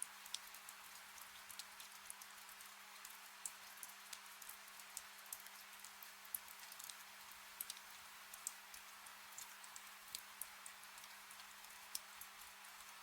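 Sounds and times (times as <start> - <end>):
raindrops ticking: 0.0 - 7.0, 7.6 - 13.0
gentle rain: 0.0 - 13.0.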